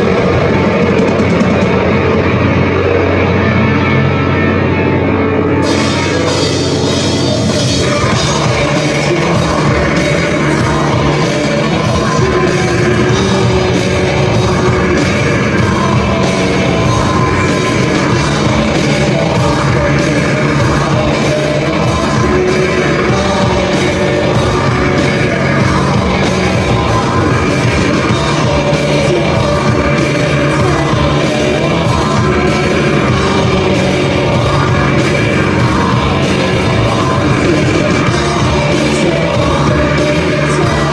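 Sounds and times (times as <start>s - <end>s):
sung and yelled vocals: 0.0s - 4.9s, 5.6s - 40.9s
live rock band playing: 0.0s - 40.9s.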